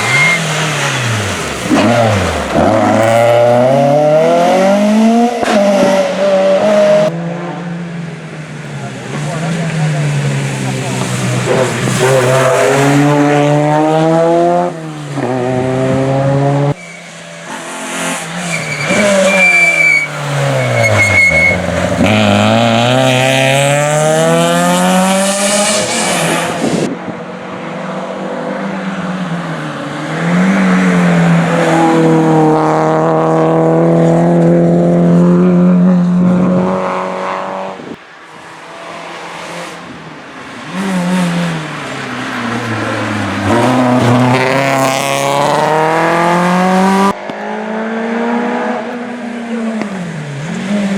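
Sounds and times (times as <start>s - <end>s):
tyre squeal: 0.0s - 2.8s, 16.8s - 22.2s
rally car engines revving: 0.0s - 50.9s.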